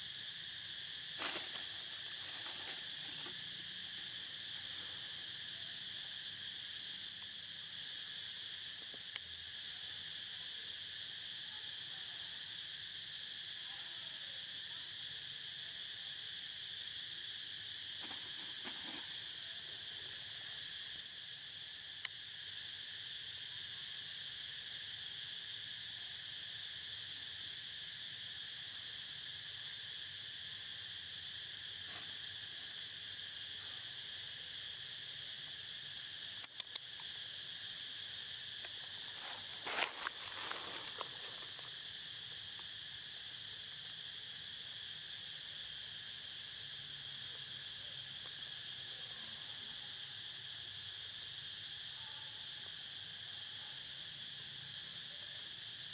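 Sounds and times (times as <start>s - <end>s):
insect chorus trilling: 0.0s - 55.9s
faint clicks: 36.4s - 37.0s.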